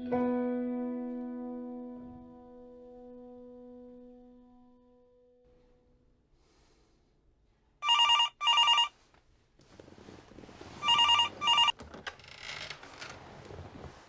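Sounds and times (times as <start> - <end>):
telephone ringing: 7.8 - 8.9, 10.8 - 11.8.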